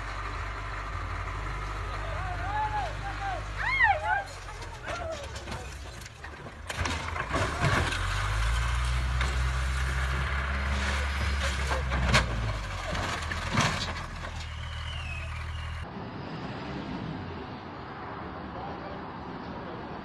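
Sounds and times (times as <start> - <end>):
diesel engine running: 0.0 - 15.8.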